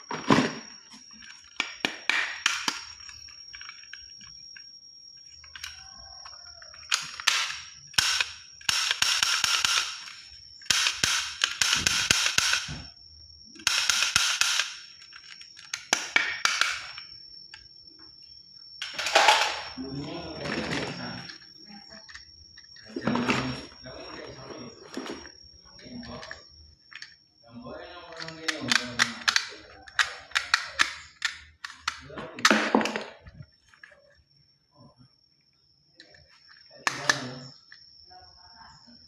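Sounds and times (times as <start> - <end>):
toy gun clicks: 1.2 - 3.7, 6.9 - 12.7, 13.6 - 17.0, 28.2 - 32.0
toy gun rapid shooting: 6.9 - 12.8, 13.6 - 14.9.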